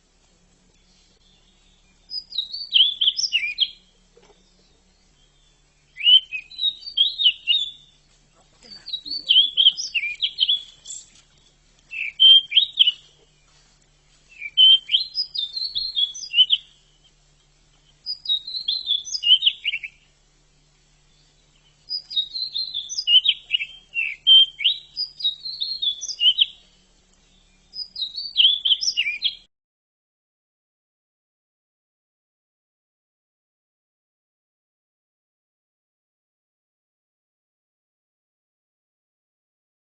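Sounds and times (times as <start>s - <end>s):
bushchat warbling song: 8.4s - 11.2s, 11.9s - 13.3s, 18.0s - 20.0s.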